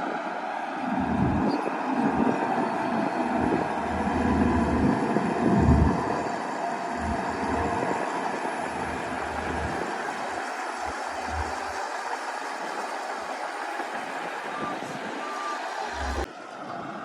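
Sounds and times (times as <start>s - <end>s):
bulldozer diesel engine under load: 0.8s - 16.3s.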